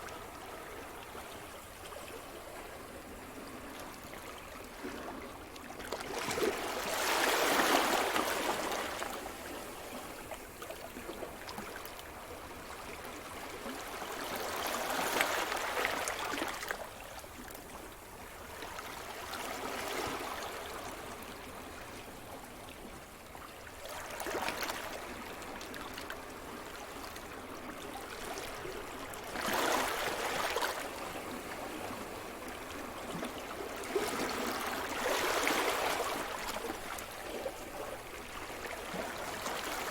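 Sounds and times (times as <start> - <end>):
waves breaking on shore: 26.4 - 39.9.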